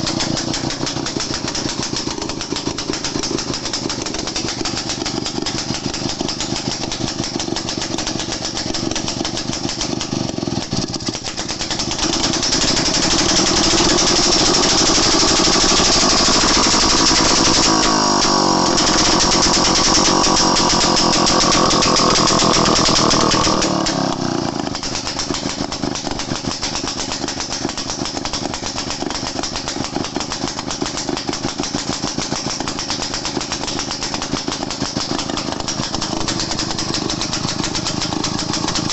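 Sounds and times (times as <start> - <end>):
two-stroke engine idling and revving: 0.0 - 38.9.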